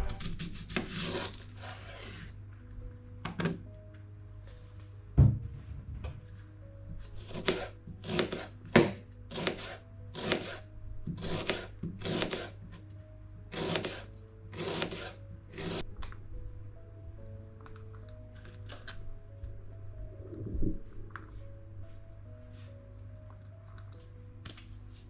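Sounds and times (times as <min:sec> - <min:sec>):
soft background music: 0:00.0 - 0:25.0
knock: 0:05.2 - 0:06.2
knife slicing on cutting board: 0:07.3 - 0:08.5.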